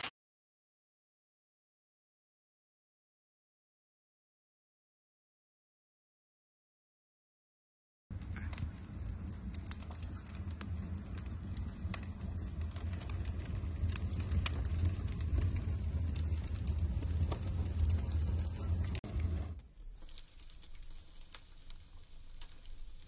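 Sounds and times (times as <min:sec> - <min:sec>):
fire low rumble: 0:08.1 - 0:23.0
wood fire crackling: 0:08.1 - 0:23.0.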